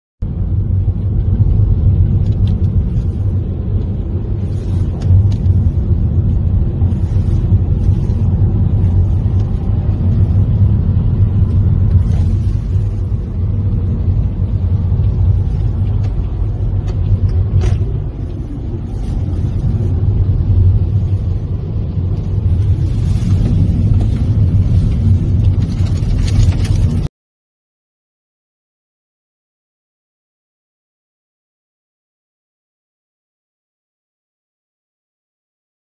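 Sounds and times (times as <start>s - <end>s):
wind buffeting microphone: 0.3s - 27.1s
sharp crackles: 22.1s - 27.1s.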